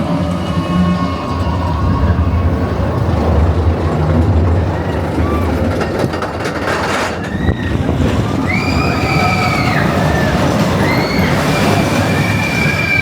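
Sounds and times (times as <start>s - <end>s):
roller coaster rumbling on track: 0.0s - 13.0s
high-pitched wheel squeals: 7.0s - 13.0s.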